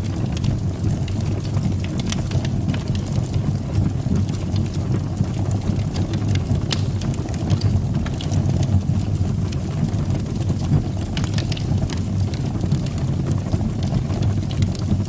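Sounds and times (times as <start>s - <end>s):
fire crackling in fireplace: 0.0s - 15.0s.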